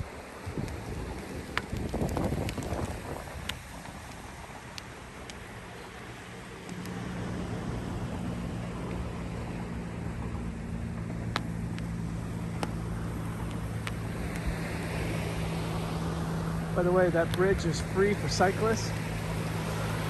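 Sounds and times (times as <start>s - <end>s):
wind noise: 0.0s - 5.8s
vehicle engine hum: 0.0s - 20.0s
faint sharp clicks: 1.5s - 5.9s, 6.6s - 7.0s, 11.2s - 12.8s, 13.4s - 14.5s.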